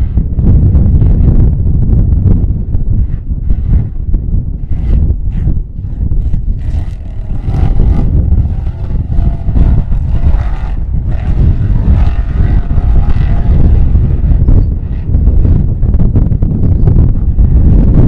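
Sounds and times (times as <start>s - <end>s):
wind buffeting microphone: 0.0s - 18.0s
vehicle engine running: 4.6s - 16.8s.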